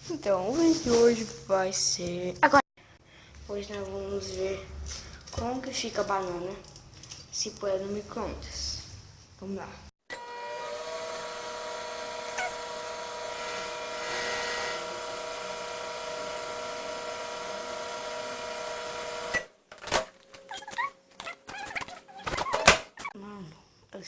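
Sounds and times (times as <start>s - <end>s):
microwave oven humming: 10.1s - 19.6s.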